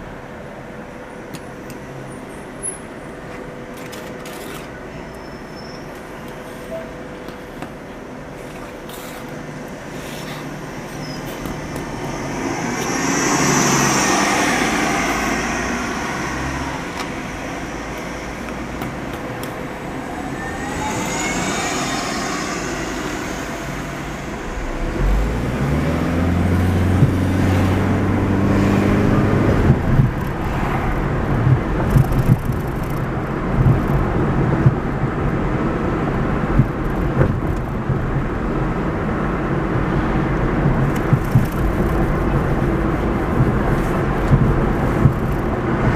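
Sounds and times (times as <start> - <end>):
car engine and tyre noise: 0.0 - 45.9
passing vehicle: 3.4 - 45.9
car accelerating: 9.7 - 38.3
thumps over road noise: 26.9 - 27.6, 31.3 - 34.9, 36.4 - 38.3, 40.6 - 42.5, 43.2 - 45.9.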